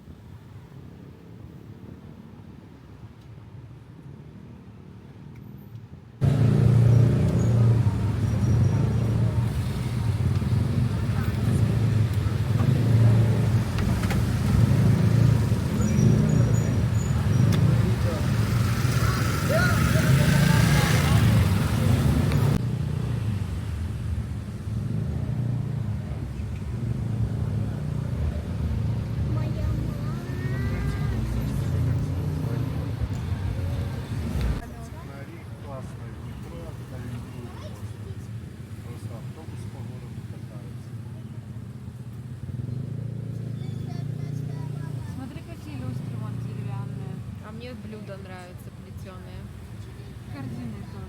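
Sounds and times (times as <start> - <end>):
car engine and road hum: 5.4 - 51.0.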